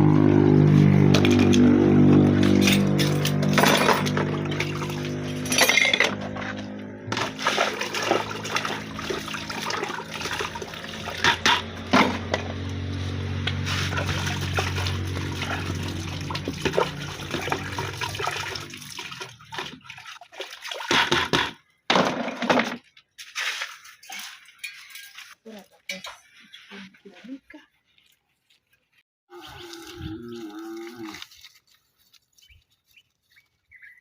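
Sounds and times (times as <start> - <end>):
water splashing and pouring: 0.8 - 25.6, 29.3 - 32.2
pots clinking and knocking: 11.1 - 12.6.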